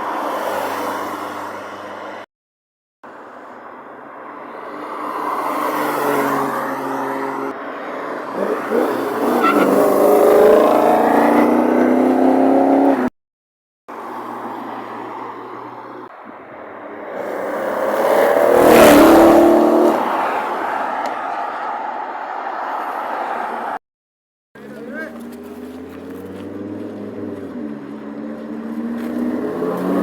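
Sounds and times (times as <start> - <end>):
car passing by: 0.0 - 2.3, 4.2 - 13.0, 13.9 - 23.8, 24.7 - 30.0
sports car engines accelerating: 8.3 - 13.1, 17.1 - 20.2, 24.6 - 30.0.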